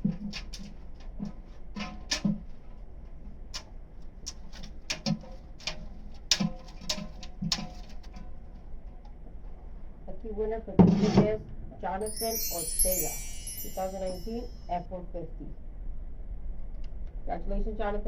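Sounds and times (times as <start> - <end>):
irregular clicks and light knocks: 3.5 - 8.2.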